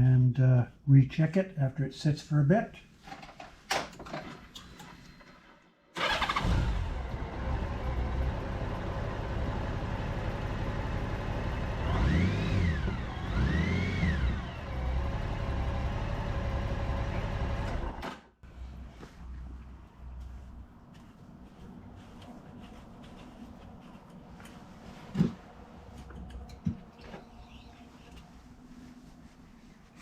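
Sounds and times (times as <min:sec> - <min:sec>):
motorcycle engine idling and revving: 0:06.0 - 0:18.0.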